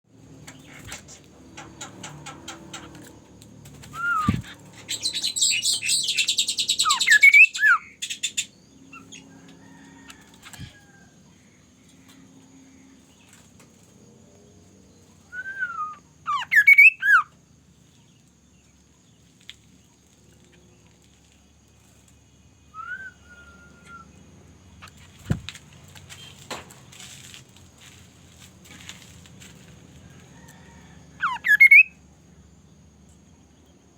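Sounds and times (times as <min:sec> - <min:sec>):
harsh rapid bird rattle: 0:00.4 - 0:06.5
bird whistled calls: 0:03.9 - 0:08.5, 0:15.3 - 0:17.3, 0:22.7 - 0:24.2, 0:31.2 - 0:32.0.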